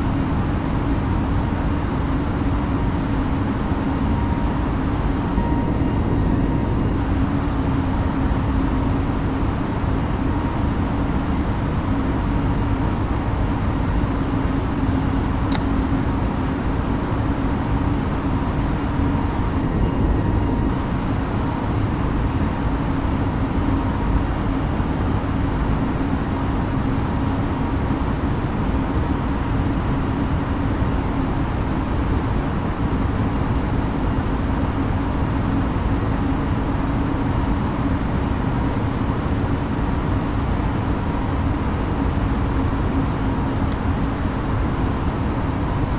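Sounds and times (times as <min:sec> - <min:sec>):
airliner cabin engine roar: 0:00.0 - 0:35.8
steady low hum: 0:00.0 - 0:45.9
short click: 0:15.5 - 0:15.8.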